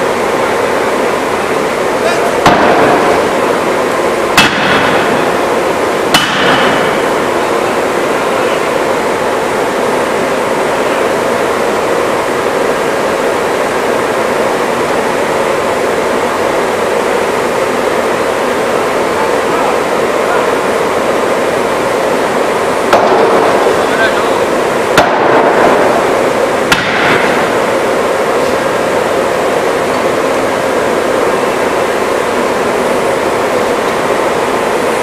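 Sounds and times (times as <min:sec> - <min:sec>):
loud steady machine noise: 0:00.0 - 0:35.0.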